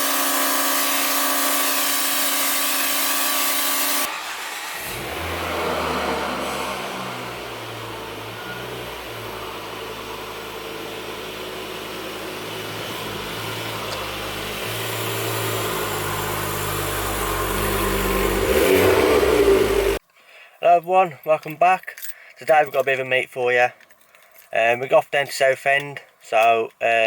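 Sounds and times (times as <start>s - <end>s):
car engine running: 3.5s - 20.0s.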